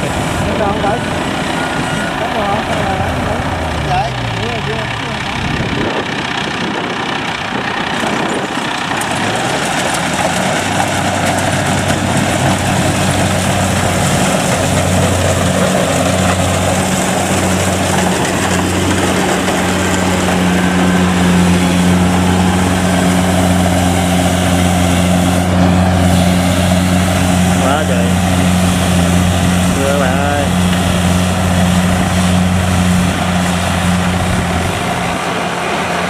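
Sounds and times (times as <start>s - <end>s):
diesel engine hum: 0.0s - 36.0s.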